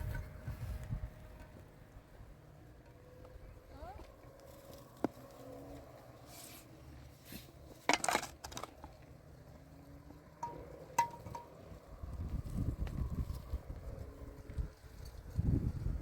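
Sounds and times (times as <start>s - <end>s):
hard objects clinking and knocking: 10.4s - 11.6s.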